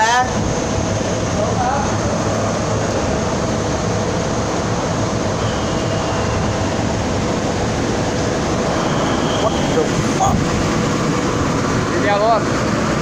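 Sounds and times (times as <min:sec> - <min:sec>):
faint high whine: 0:00.0 - 0:12.4
cnc router whirring: 0:00.0 - 0:13.0.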